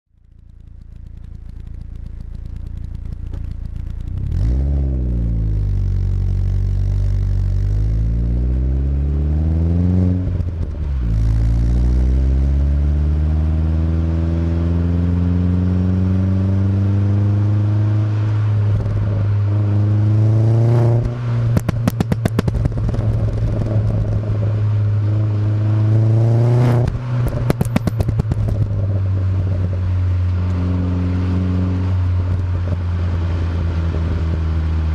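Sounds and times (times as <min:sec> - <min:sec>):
exhaust pops and crackles: 0:00.1 - 0:08.6, 0:10.2 - 0:12.6, 0:18.2 - 0:19.8, 0:20.8 - 0:34.9
car engine idling and revving: 0:00.1 - 0:34.9.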